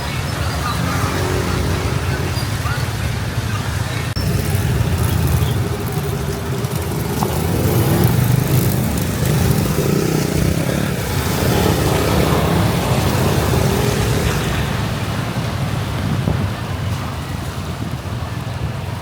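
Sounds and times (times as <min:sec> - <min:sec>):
wind and road noise hiss: 0:00.0 - 0:19.0
motorbike engine running: 0:04.2 - 0:14.5.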